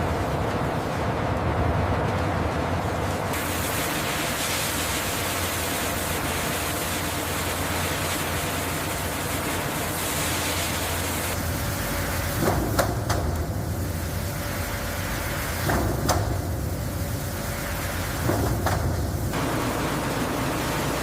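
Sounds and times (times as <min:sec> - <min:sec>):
machinery hum: 0:00.0 - 0:21.0
broad hiss: 0:03.2 - 0:19.5.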